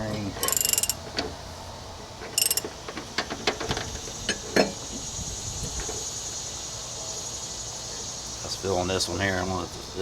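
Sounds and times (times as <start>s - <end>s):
ratchet wrench clicking: 0.4s - 1.0s, 2.4s - 2.7s
crickets trilling: 0.4s - 1.1s, 2.4s - 3.0s, 3.6s - 10.0s.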